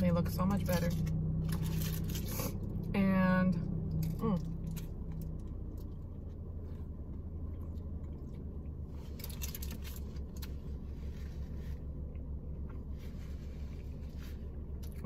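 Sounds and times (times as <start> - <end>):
low car hum: 0.0 - 15.0
crisp crackles: 1.5 - 2.6, 9.0 - 11.8
person biting and chewing wrap: 7.5 - 11.6.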